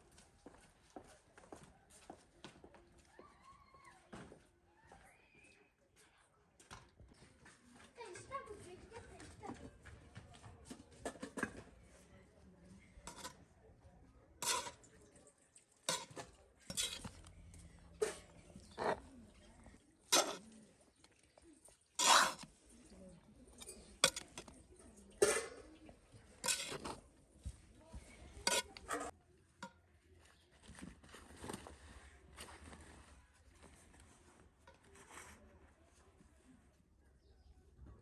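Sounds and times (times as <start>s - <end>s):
dishes and utensils clinking: 13.1s - 13.4s, 14.4s - 19.4s, 20.0s - 21.4s, 23.5s - 27.0s, 28.4s - 29.8s.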